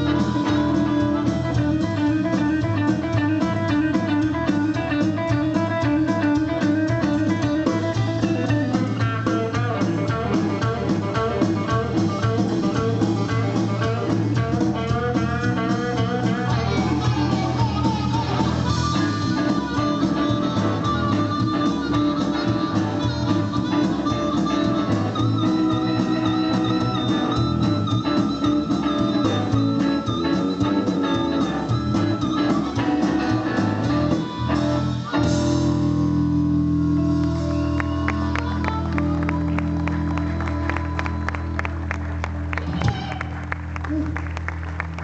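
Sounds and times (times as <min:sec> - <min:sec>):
electric guitar leading: 0:00.0 - 0:45.0
live blues band playing: 0:00.0 - 0:45.0.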